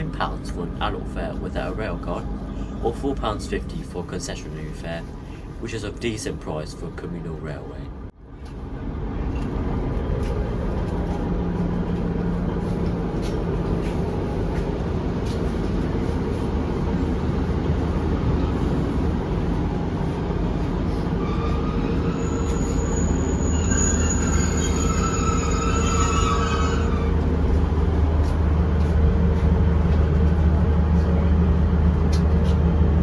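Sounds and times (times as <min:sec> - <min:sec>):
diesel engine rumble: 0:00.0 - 0:33.0
wheels on rails: 0:08.4 - 0:33.0
high metallic squeal: 0:21.2 - 0:27.3.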